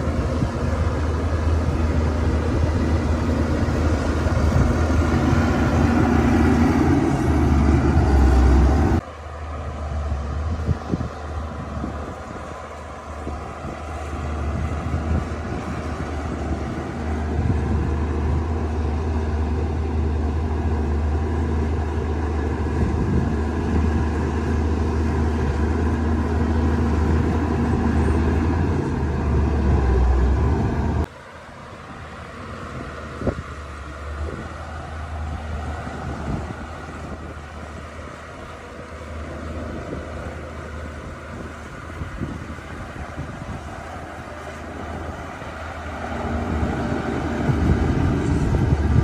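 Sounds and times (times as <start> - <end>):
bulldozer diesel engine drone: 0.0 - 49.0.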